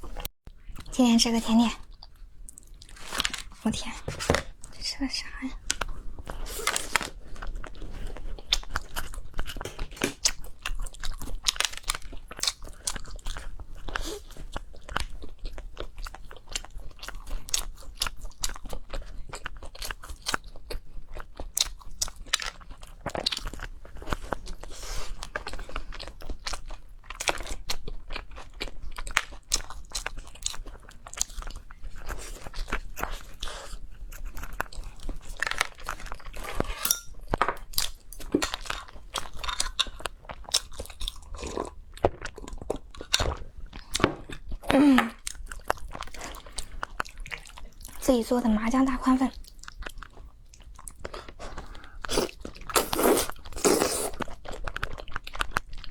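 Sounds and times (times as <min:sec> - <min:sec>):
person crunching and chewing food: 0:00.0 - 0:48.1, 0:49.3 - 0:55.9.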